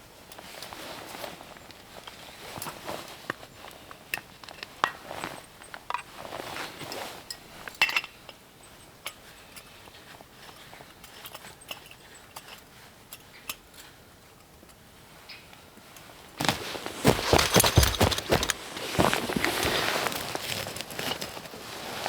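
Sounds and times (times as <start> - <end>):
gear rustling and clattering: 16.4 - 22.0.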